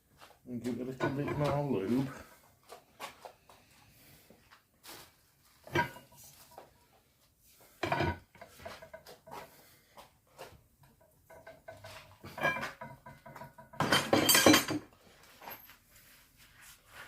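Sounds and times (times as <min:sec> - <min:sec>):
handling and rubbing: 0:00.1 - 0:07.8, 0:14.9 - 0:17.0
metal tools clanking: 0:00.8 - 0:02.2, 0:11.4 - 0:15.6.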